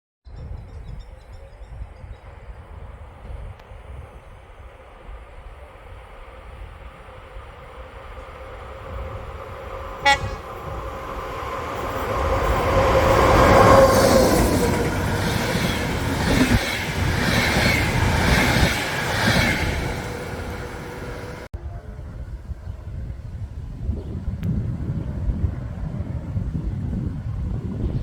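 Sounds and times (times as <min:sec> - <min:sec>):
train running noise: 0:02.2 - 0:21.5
train horn toot: 0:10.0 - 0:10.8.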